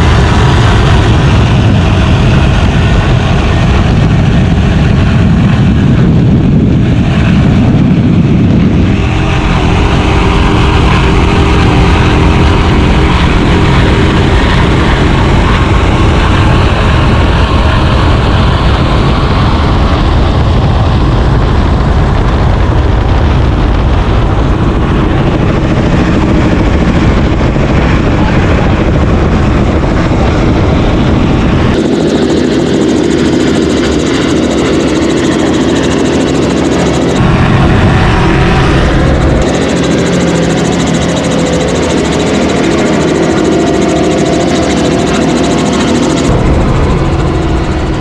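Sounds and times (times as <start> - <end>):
powerboat engine: 0.0 - 48.0.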